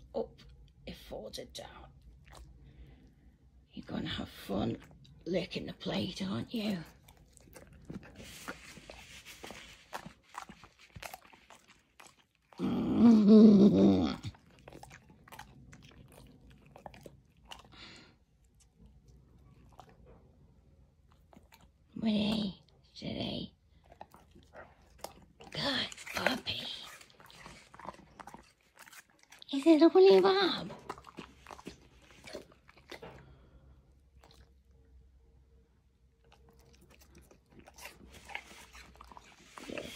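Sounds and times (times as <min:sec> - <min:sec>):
low room hum: 0:00.0 - 0:39.9
dog chewing and crunching: 0:03.8 - 0:22.6, 0:23.7 - 0:35.0, 0:36.2 - 0:39.9
dog moaning: 0:12.5 - 0:15.4.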